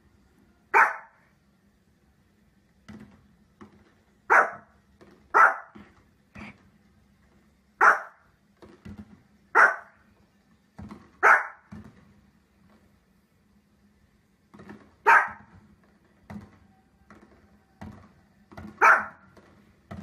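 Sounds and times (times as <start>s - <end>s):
small dog barking: 0.7s - 1.2s, 4.3s - 4.7s, 5.3s - 5.8s, 7.8s - 8.2s, 9.5s - 10.0s, 11.2s - 11.7s, 15.0s - 15.5s, 18.7s - 19.3s.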